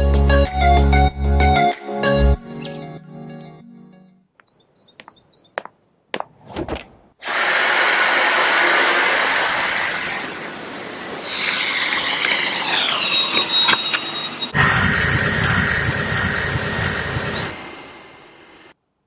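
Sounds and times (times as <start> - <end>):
stick vacuum motor whining: 7.2 - 18.8
high electronic beeps: 11.2 - 18.8.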